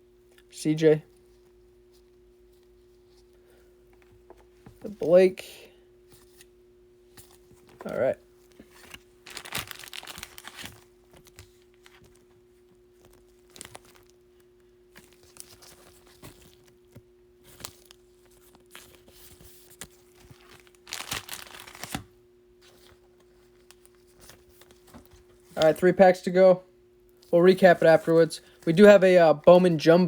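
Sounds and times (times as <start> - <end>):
wrapper tearing and crinkling: 8.9 - 12.2, 13.0 - 14.2, 19.8 - 22.1.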